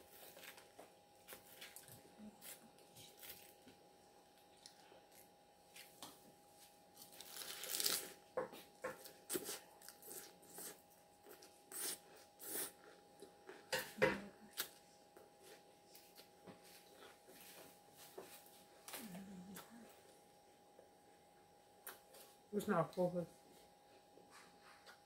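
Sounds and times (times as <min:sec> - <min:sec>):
salad crunched and chewed: 0:07.0 - 0:08.2.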